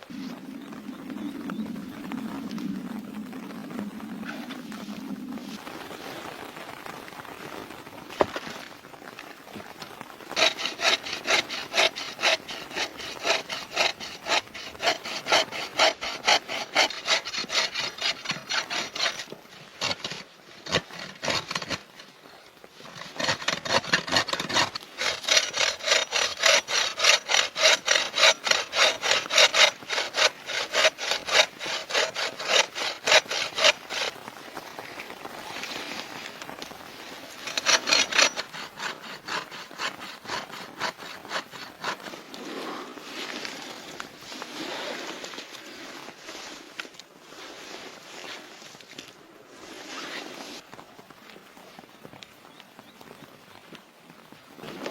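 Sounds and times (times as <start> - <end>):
hand saw cutting wood: 10.3 - 21.9, 22.8 - 34.2, 37.4 - 42.3.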